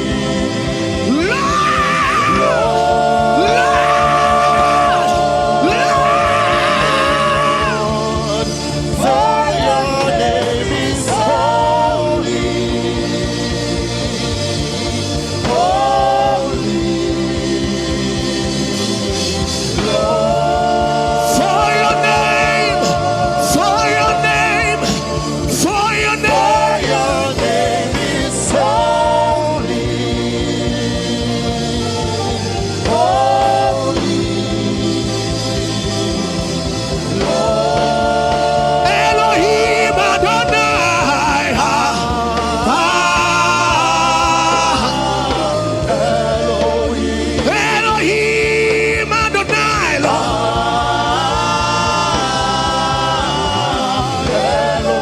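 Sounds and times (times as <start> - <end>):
gospel singing: 0.0 - 55.0
sustained instrumental backing: 0.0 - 55.0.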